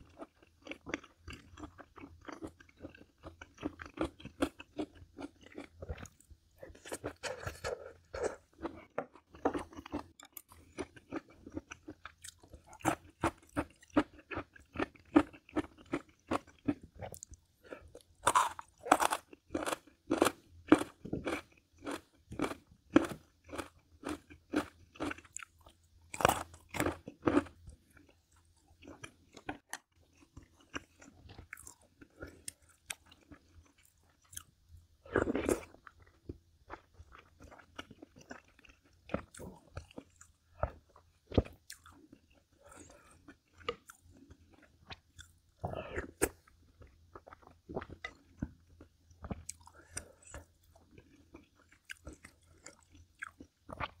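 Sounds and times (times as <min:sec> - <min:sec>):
person chewing crisp food: 0:00.0 - 0:54.0.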